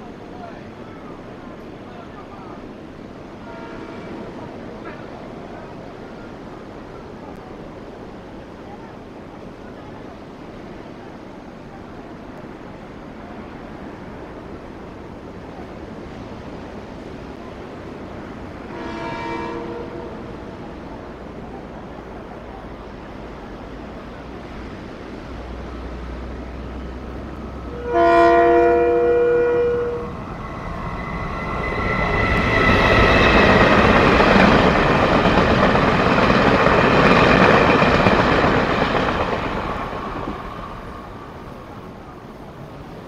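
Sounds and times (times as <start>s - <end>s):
train wheels on rails: 0.0s - 43.0s
train horn blasts: 3.4s - 4.4s, 18.6s - 20.6s, 27.6s - 33.6s.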